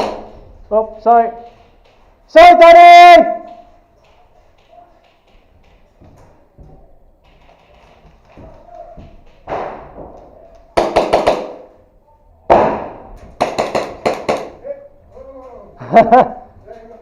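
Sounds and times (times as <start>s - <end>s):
airsoft guns firing: 0.0s - 0.5s, 10.8s - 11.8s, 12.5s - 14.6s.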